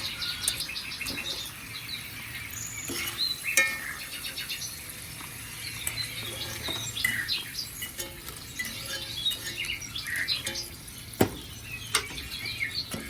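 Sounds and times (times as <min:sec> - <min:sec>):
birds chirping and singing: 0:00.0 - 0:13.0.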